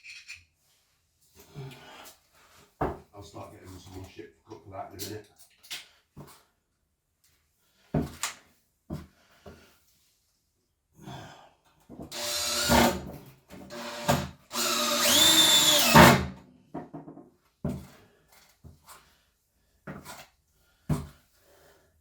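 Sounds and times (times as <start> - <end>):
power drill running: 12.1 - 16.4.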